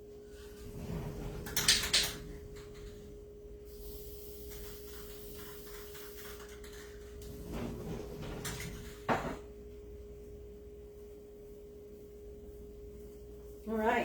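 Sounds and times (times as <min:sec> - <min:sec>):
steady electrical hum: 0:00.0 - 0:14.0
hiss: 0:03.7 - 0:06.8.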